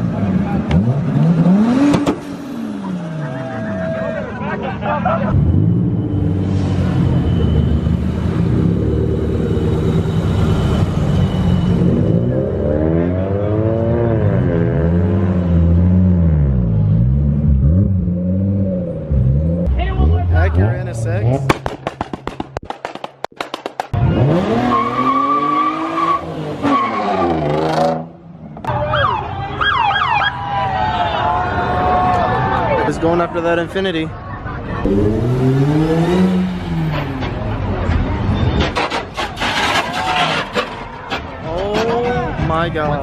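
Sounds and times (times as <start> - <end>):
siren: 5.6 - 13.1, 28.7 - 32.0
sharp pops: 21.4 - 24.0
car engine accelerating: 24.0 - 28.2, 34.8 - 40.8
tyres squealing: 37.9 - 43.0.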